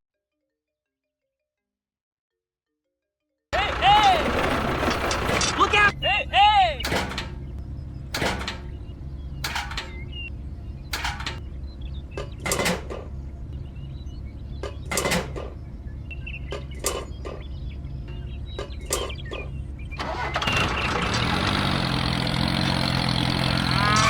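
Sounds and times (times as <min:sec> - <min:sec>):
knocks and clatters: 0:03.6 - 0:05.9, 0:06.8 - 0:08.8, 0:09.4 - 0:10.3, 0:10.9 - 0:11.5, 0:12.1 - 0:13.3, 0:14.5 - 0:15.7, 0:16.4 - 0:24.0
steady low hum: 0:06.2 - 0:20.0.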